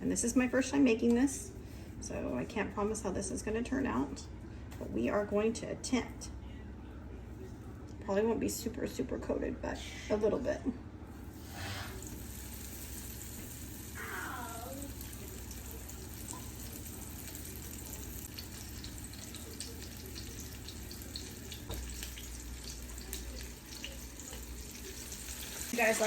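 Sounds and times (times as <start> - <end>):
chicken frying in hot oil: 11.3 - 26.0.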